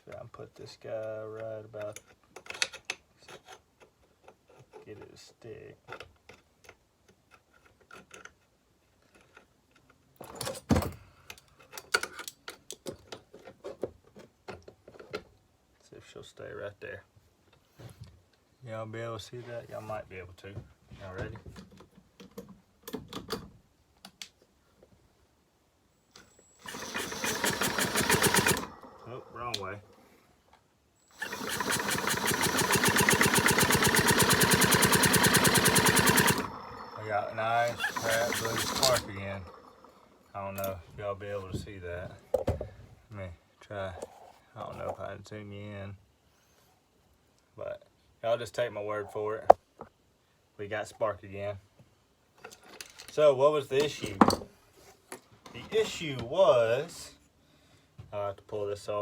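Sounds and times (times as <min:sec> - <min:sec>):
engine ignition ticking: 0:26.6 - 0:29.7, 0:31.1 - 0:40.0.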